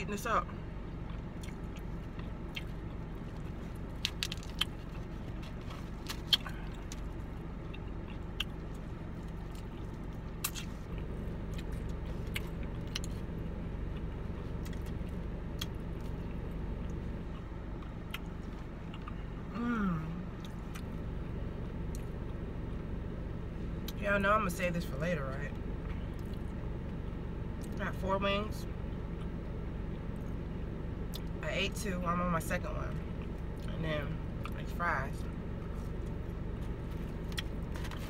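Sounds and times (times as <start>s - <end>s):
car interior low hum: 0.0s - 38.0s
chewing and crunching fried chicken: 0.9s - 19.5s, 25.5s - 27.8s, 33.0s - 38.0s.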